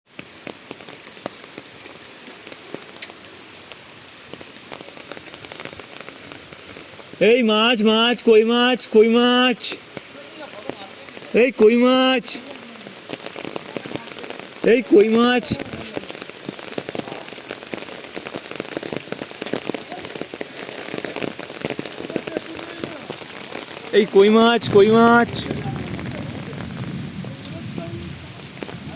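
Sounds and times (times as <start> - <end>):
raindrops pattering on surfaces: 0.0 - 28.9
steady rain: 0.0 - 28.9.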